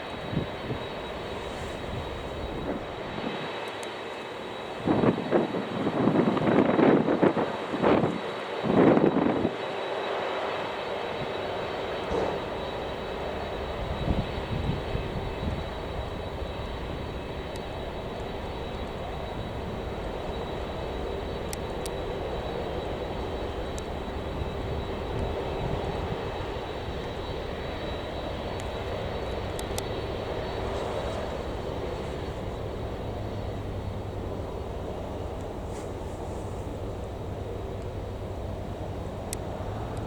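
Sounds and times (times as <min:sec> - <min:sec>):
jet engines running: 0:00.0 - 0:40.0.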